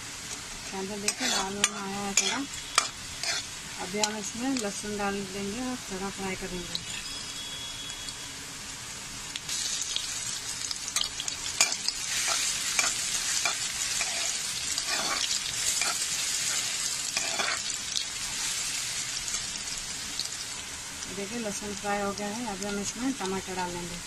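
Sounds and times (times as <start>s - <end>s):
onion sizzling in hot oil: 0.0s - 24.0s
metal spoon scraping pan: 1.0s - 4.2s, 11.0s - 17.6s.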